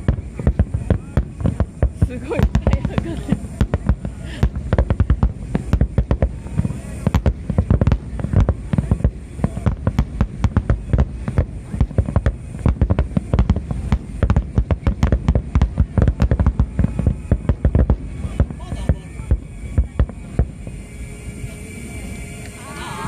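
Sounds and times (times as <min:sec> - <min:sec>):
fireworks exploding: 0:00.0 - 0:22.4.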